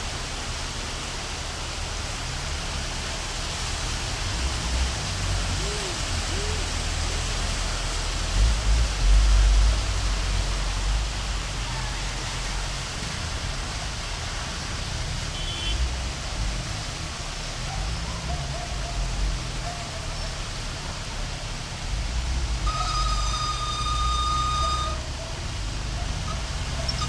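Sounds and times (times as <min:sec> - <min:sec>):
engines rumbling in traffic: 0:00.0 - 0:27.0
heavy rain: 0:00.0 - 0:27.0
car horn: 0:15.3 - 0:15.8, 0:22.6 - 0:25.3.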